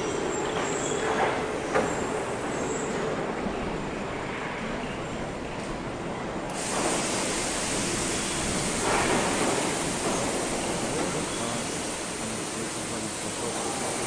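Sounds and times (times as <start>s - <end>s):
rushing hiss: 6.5s - 14.0s.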